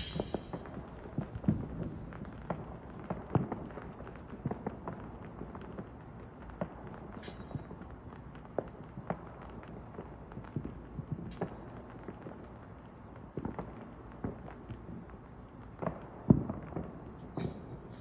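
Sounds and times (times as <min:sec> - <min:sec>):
firework boom: 0:00.0 - 0:02.6
distant fireworks popping: 0:00.0 - 0:18.0.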